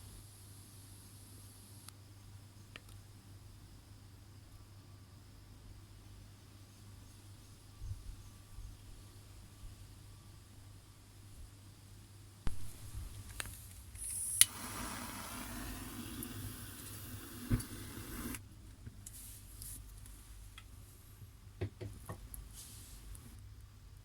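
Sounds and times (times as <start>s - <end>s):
gas flame hissing: 12.5s - 19.6s, 22.4s - 23.4s.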